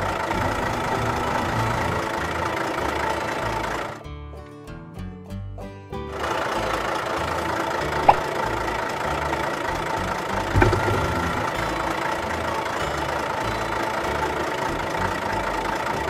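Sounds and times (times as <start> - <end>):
tractor engine running: 0.0 - 4.1, 6.1 - 16.0
sharp click: 8.0 - 8.3.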